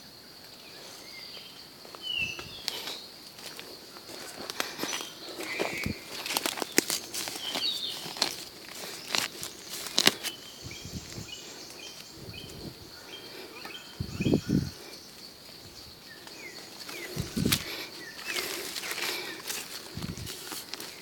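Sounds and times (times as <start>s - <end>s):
rustling and handling noises: 2.4s - 12.6s, 16.2s - 21.0s.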